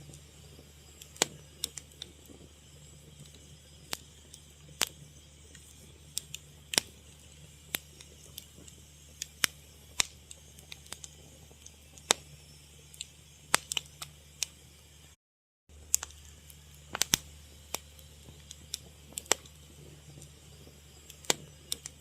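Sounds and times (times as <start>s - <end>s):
fire crackling: 0.0s - 22.0s
low steady hum: 0.0s - 22.0s.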